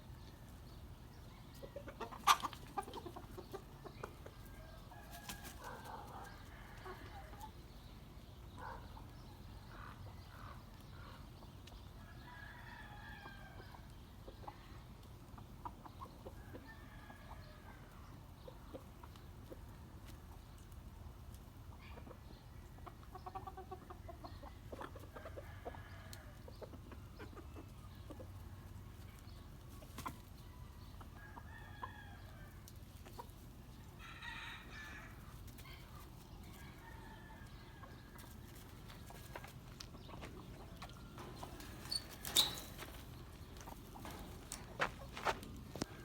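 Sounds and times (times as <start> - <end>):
birds calling: 38.5 - 46.0.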